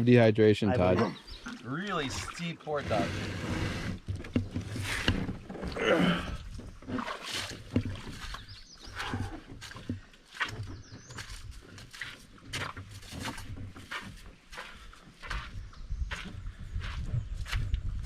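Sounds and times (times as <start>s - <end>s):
footsteps on trail: 7.9s - 18.0s.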